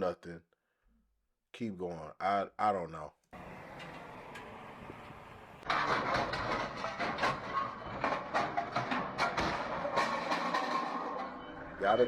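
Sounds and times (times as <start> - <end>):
motor vehicle running: 3.4 - 11.8
knocks and rattles: 3.8 - 11.8.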